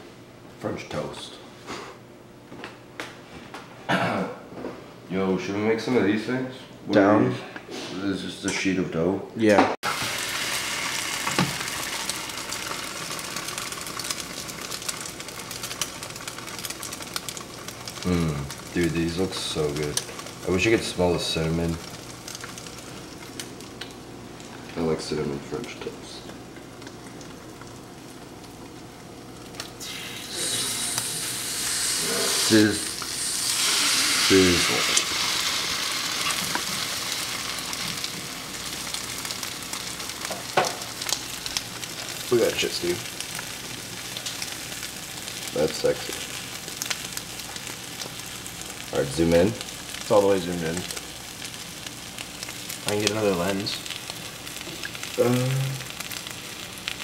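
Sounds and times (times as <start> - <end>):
toast sizzling in a pan: 9.8 - 57.0.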